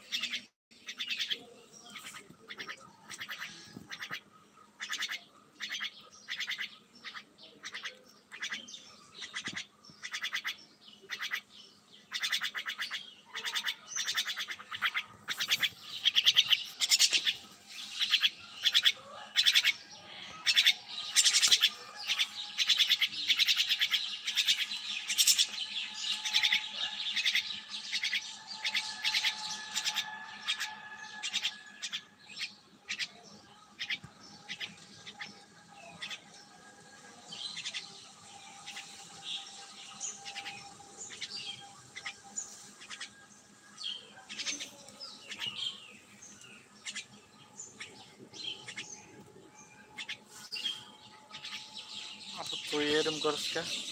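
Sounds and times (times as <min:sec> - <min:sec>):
bird chirping rapidly: 0:04.8 - 0:19.8, 0:20.4 - 0:33.2.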